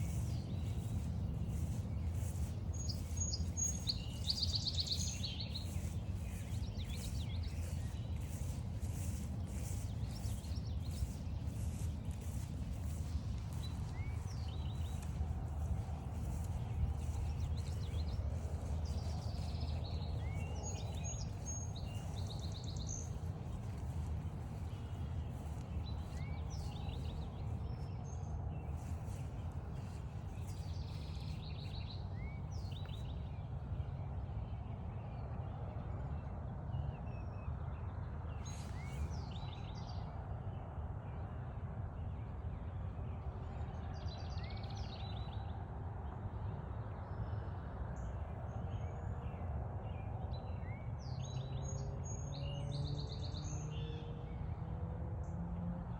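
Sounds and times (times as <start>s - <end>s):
footsteps on trail: 0.0s - 27.9s, 28.7s - 31.9s
bird song: 0.0s - 55.9s.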